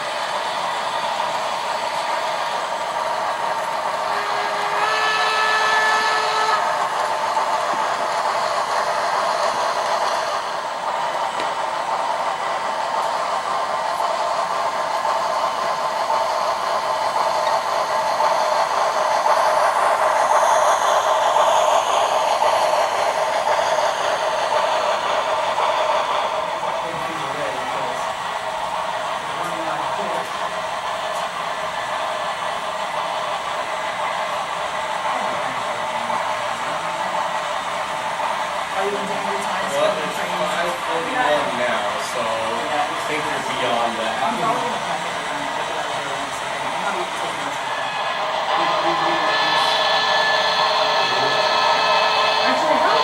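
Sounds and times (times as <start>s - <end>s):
model locomotive rushing noise: 0.0s - 53.0s
model steam whistle chord: 3.9s - 7.0s.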